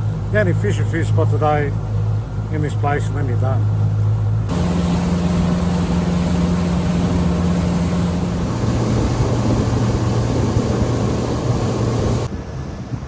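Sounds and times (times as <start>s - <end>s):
outboard motor running: 4.5s - 12.3s
wind and water rushing: 4.5s - 13.0s.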